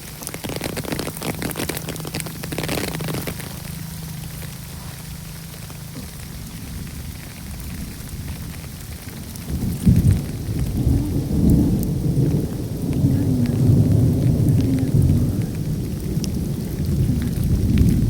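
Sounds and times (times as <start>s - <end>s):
deep uneven rumbling: 0.0s - 18.0s
rain: 0.0s - 18.0s.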